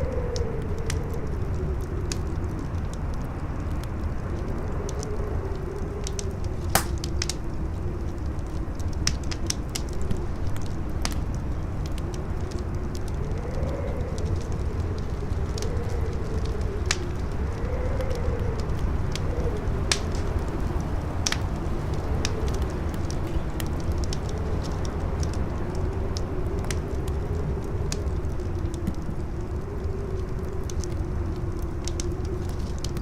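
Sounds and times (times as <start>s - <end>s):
fire crackling and popping: 0.0s - 33.0s
howling wind: 0.0s - 33.0s.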